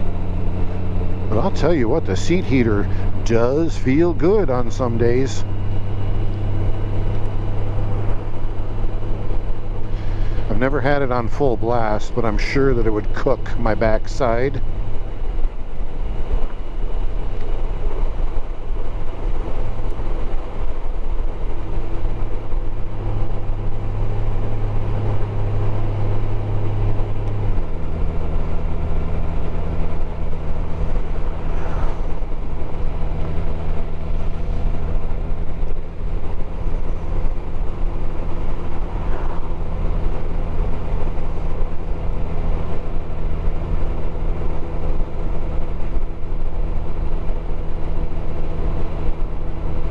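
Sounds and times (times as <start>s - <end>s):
wind and road noise: 0.0s - 49.9s
motorcycle engine running: 14.2s - 49.9s.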